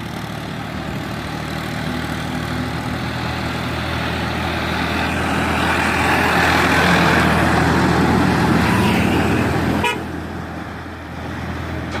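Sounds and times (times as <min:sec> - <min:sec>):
tractor diesel engine running: 0:00.0 - 0:12.0
heavy rushing noise: 0:02.0 - 0:12.0
horn toot: 0:08.8 - 0:10.1.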